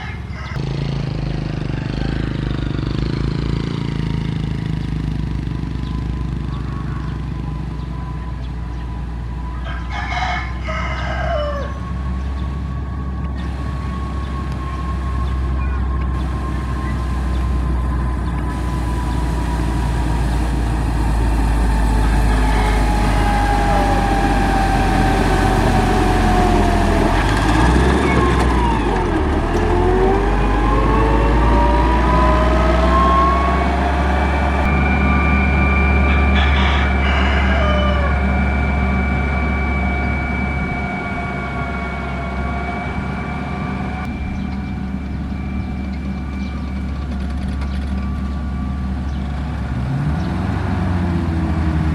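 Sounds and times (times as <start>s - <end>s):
rooster crowing: 0.0s - 0.6s, 9.4s - 17.7s, 18.6s - 44.0s
diesel engine rumbling: 0.0s - 51.9s
whining tones sliding in pitch: 7.2s - 49.3s.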